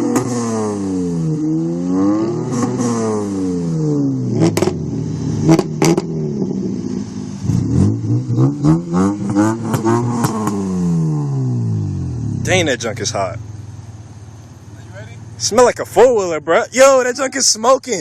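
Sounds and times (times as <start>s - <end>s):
exhaust pops: 0.0s - 0.9s, 2.4s - 16.4s
car engine revving hard: 0.0s - 13.8s.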